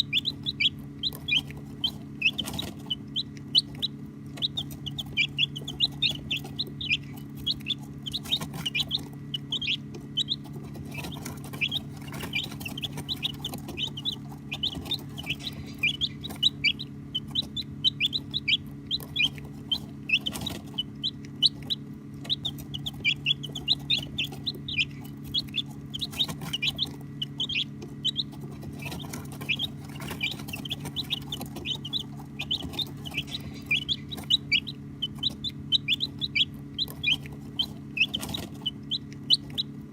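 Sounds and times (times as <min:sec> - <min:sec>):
baby chicks peeping: 0:00.0 - 0:39.9
steady low hum: 0:00.0 - 0:39.9.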